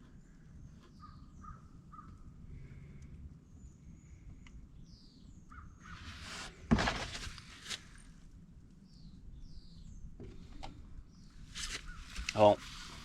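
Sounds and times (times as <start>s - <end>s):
small birds chirping: 0.0s - 6.2s, 8.8s - 12.6s
rustling handling noise: 5.9s - 8.2s, 11.4s - 13.0s.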